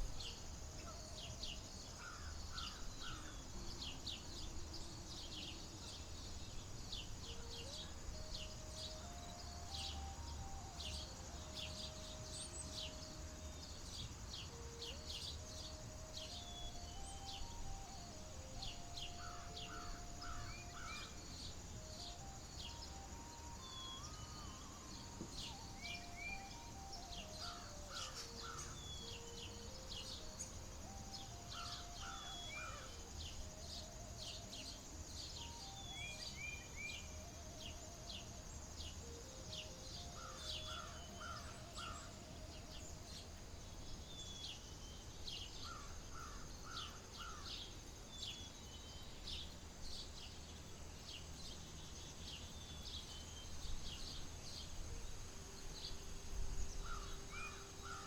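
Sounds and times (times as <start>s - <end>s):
birds chirping and calling: 6.9s - 34.7s, 35.3s - 44.8s, 56.4s - 58.0s.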